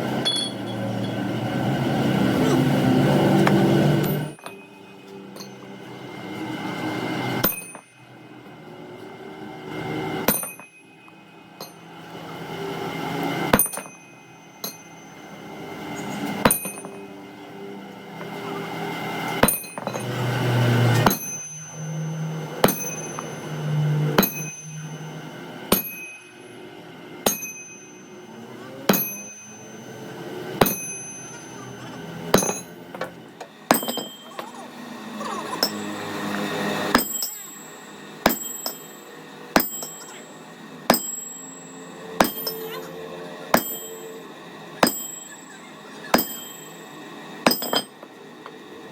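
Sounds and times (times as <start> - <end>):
hammer striking steel: 0.2 - 1.4, 3.4 - 8.0, 10.2 - 11.9, 13.5 - 17.1, 19.4 - 25.1, 25.7 - 26.6, 27.2 - 28.2, 28.9 - 34.7, 35.5 - 48.6.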